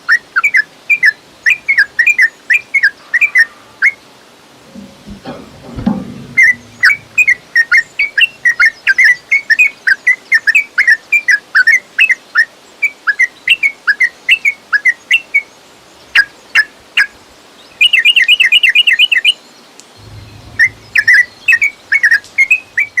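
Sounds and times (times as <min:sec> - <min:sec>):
bulbul bird song: 0:17.6 - 0:23.0.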